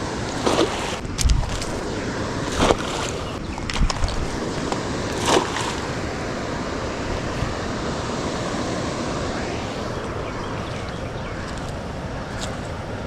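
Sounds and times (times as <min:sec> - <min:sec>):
waterfall rushing: 0:04.2 - 0:10.3.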